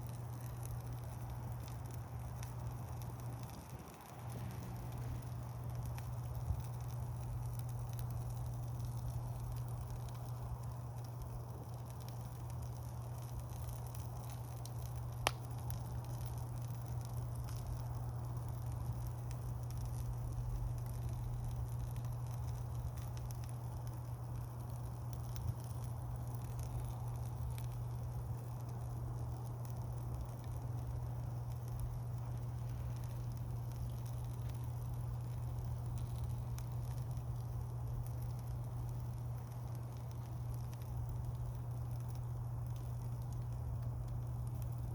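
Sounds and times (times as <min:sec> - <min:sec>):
burning wood popping: 0:00.0 - 0:44.9
campfire crackling: 0:00.0 - 0:44.9.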